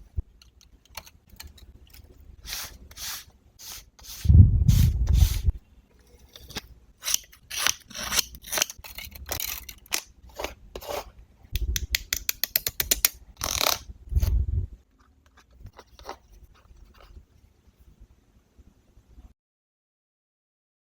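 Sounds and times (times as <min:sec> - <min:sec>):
scissors cutting paper: 0:07.0 - 0:11.1.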